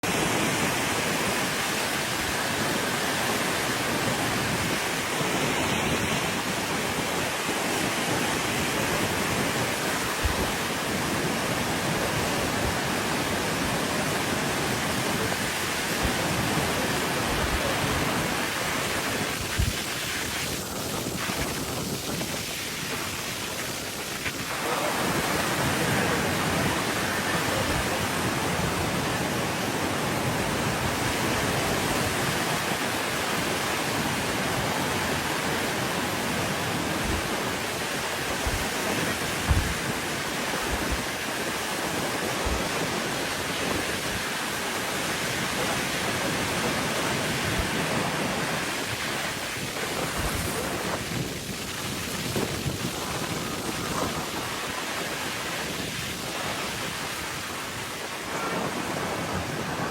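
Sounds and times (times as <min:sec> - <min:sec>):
river rushing: 0:00.0 - 0:59.9.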